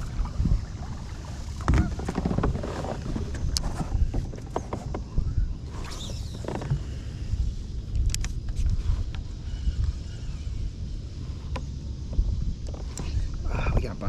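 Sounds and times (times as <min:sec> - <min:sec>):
wind rumble on microphone: 0:00.0 - 0:14.0
kayak knocks and clicks: 0:01.6 - 0:05.2.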